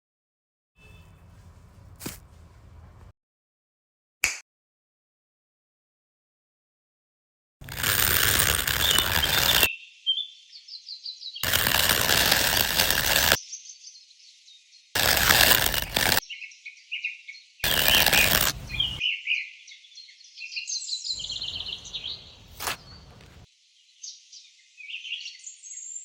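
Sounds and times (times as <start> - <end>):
birds chirping: 0.8 - 3.1, 8.4 - 26.0
harsh noise bursts: 11.4 - 13.4, 15.0 - 16.2.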